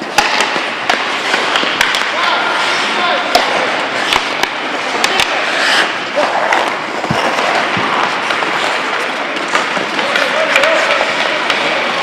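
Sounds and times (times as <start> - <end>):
hockey sticks and puck clacking: 0.0 - 12.0
skates scraping on ice: 0.0 - 12.0.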